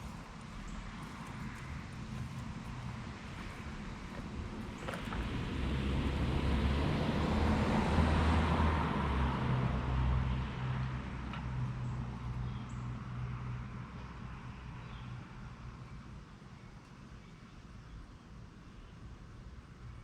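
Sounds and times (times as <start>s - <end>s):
engine running: 0.0s - 14.2s.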